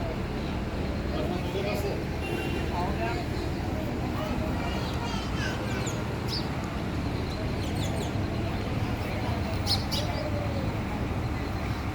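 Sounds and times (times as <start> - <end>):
small birds chirping: 4.6 - 11.9.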